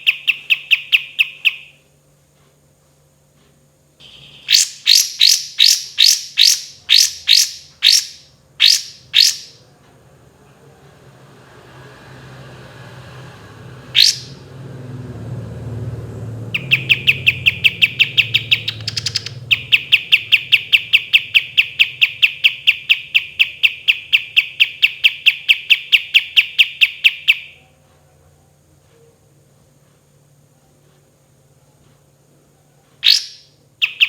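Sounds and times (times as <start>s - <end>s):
songbird singing a trill: 0.0s - 1.8s, 4.0s - 9.6s, 14.0s - 14.4s, 16.5s - 27.7s, 33.0s - 34.0s.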